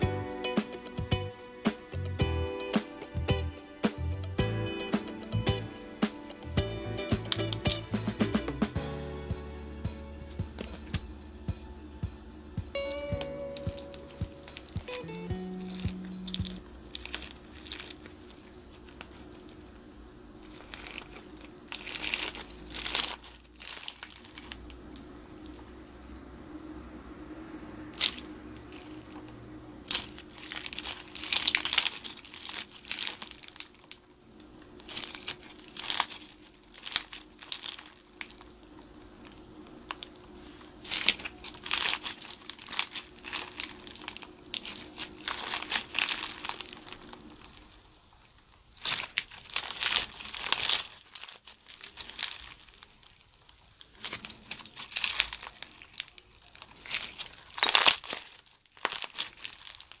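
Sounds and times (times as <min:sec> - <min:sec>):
slime crackling and popping: 0:05.9 - 0:07.8, 0:12.7 - 0:25.7, 0:27.9 - 1:00.0.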